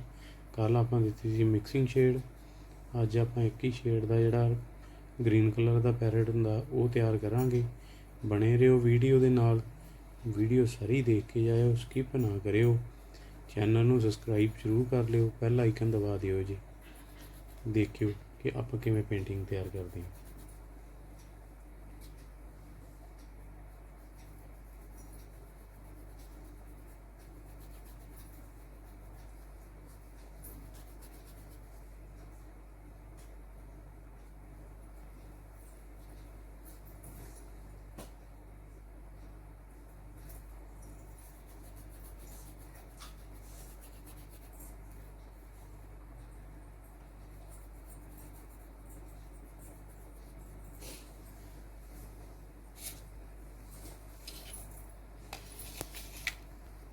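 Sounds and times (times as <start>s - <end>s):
low electrical hum: 0.0s - 56.9s
drawing tool scratching paper: 16.8s - 18.1s, 24.0s - 31.7s, 41.2s - 44.6s.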